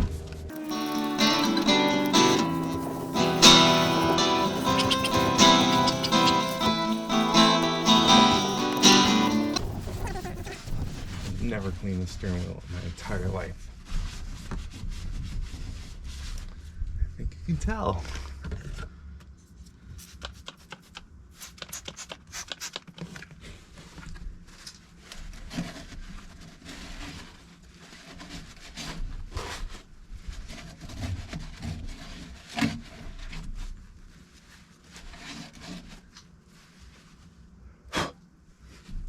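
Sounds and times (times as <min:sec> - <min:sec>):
hand scrubbing steering wheel: 0:00.5 - 0:11.2.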